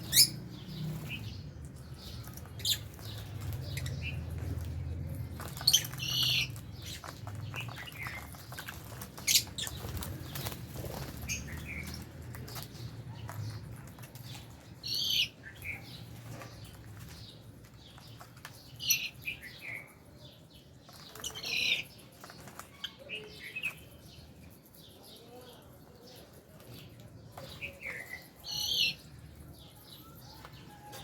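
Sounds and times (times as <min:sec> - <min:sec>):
birds chirping shrilly: 0:00.0 - 0:04.4, 0:05.4 - 0:12.8
soft bird calls and clicks: 0:01.1 - 0:31.0.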